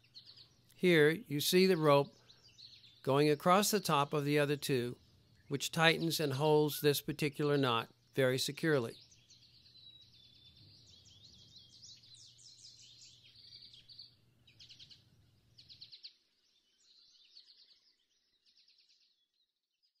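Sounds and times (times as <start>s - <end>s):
faint songbirds chirping: 0.0s - 20.0s.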